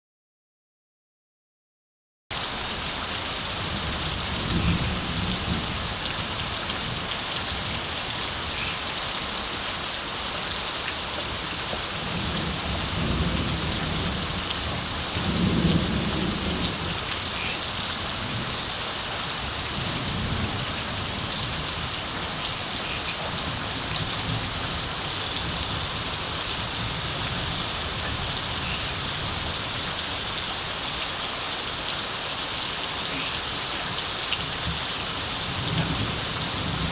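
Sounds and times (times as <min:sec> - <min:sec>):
steady rain falling: 0:02.3 - 0:36.9
distant thunder rumbling: 0:12.0 - 0:18.7.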